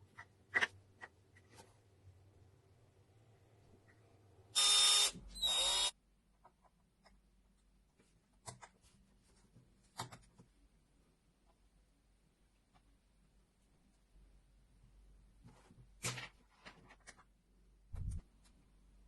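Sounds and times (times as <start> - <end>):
power tool motor bursts: 4.6 - 5.9.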